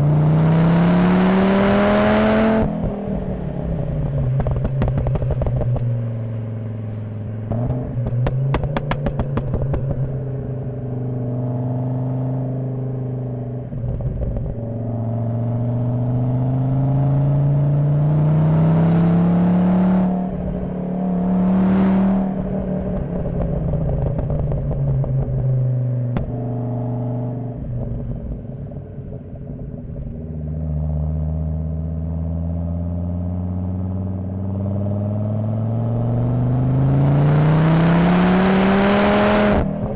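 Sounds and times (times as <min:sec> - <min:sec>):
car engine accelerating: 0:00.0 - 0:39.9
exhaust crackling and popping: 0:02.6 - 0:11.5, 0:13.2 - 0:15.0, 0:22.2 - 0:30.7, 0:39.4 - 0:39.9.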